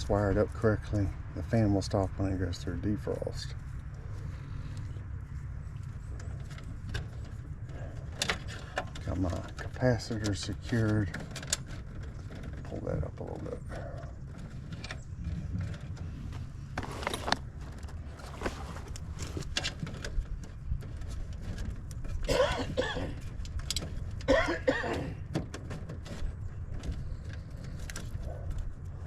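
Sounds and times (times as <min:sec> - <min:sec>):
steady low rumble: 0:00.0 - 0:29.0
small clicks and rattles: 0:04.6 - 0:29.0
person coughing: 0:22.3 - 0:23.2, 0:24.3 - 0:25.2.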